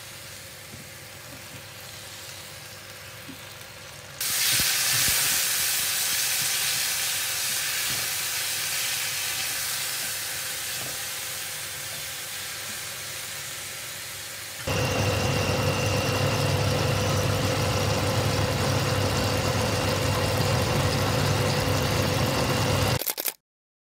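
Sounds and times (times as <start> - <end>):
food sizzling in a frying pan: 0.0 - 14.7
thin high whine: 14.4 - 23.0.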